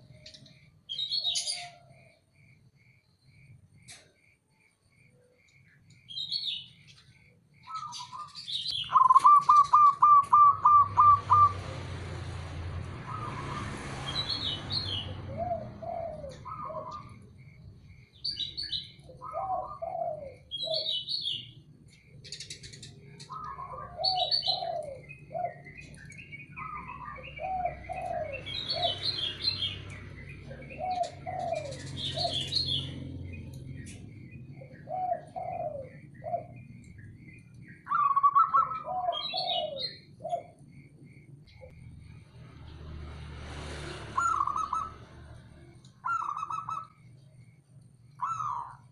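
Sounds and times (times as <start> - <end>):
small birds chirping: 0.0 - 42.9, 43.9 - 48.9
dove cooing: 7.6 - 13.8, 14.8 - 17.6, 18.3 - 40.8, 44.2 - 47.0, 48.2 - 48.9.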